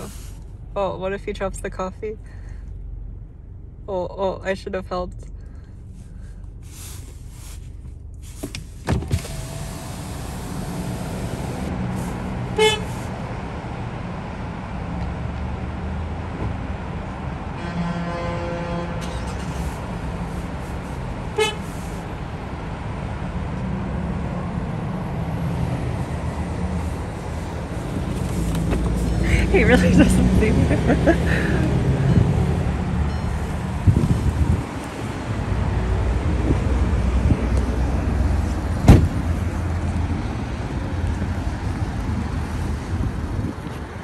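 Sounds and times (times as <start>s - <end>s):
car engine rumbling: 0.0s - 44.0s
short beeps: 33.0s - 33.6s.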